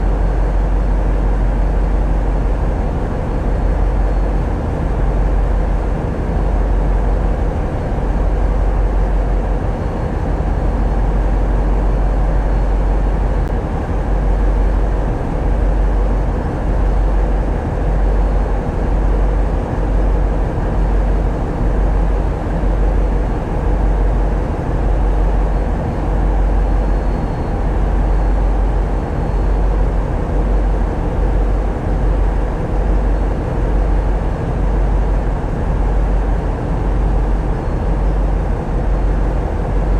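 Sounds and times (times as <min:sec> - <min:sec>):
boat diesel engines droning: 0:00.0 - 0:39.9.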